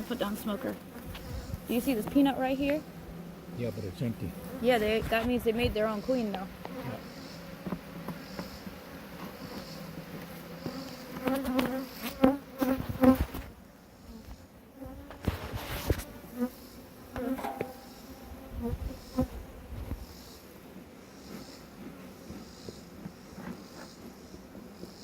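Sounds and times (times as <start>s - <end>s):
honeybees buzzing: 0.0s - 25.0s
sharp knocks: 17.2s - 18.0s.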